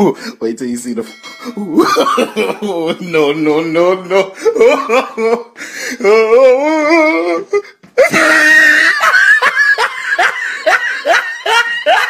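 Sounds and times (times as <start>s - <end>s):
person laughing hard: 1.6s - 3.2s, 4.0s - 12.0s.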